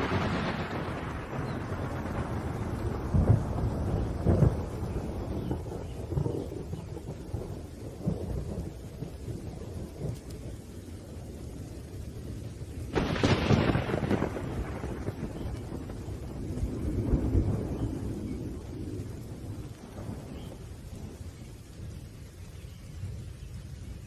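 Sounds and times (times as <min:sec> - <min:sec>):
sharp thunderclap: 0:00.0 - 0:10.4, 0:12.9 - 0:21.3
low rolling thunder: 0:00.0 - 0:24.0
steady rain: 0:00.0 - 0:24.0.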